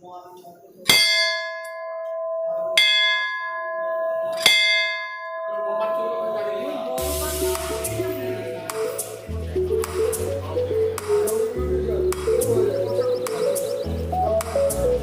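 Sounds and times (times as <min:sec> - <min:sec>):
voices: 0:00.0 - 0:15.0
temple bell ringing: 0:00.9 - 0:08.6.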